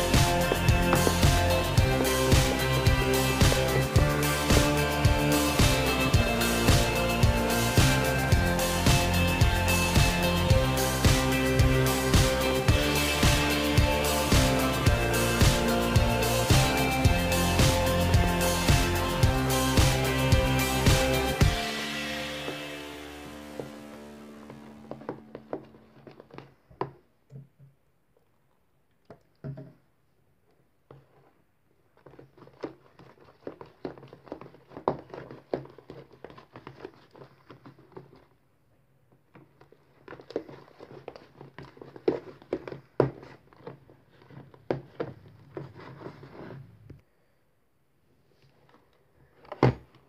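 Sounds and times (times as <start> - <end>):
music track: 0.0 - 26.1.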